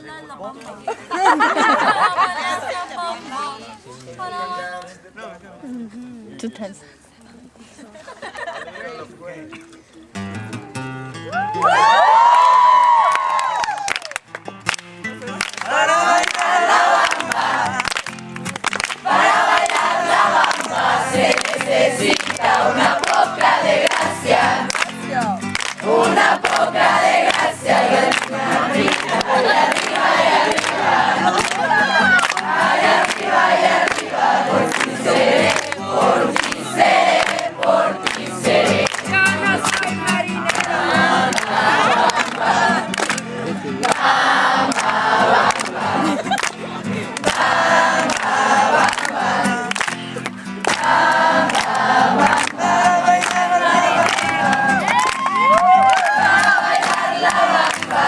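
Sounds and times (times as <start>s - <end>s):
group singing loudly: 15.7s - 17.9s, 19.0s - 24.8s, 25.8s - 39.0s, 40.3s - 43.1s, 43.8s - 49.9s, 50.6s - 55.0s, 56.0s - 58.0s.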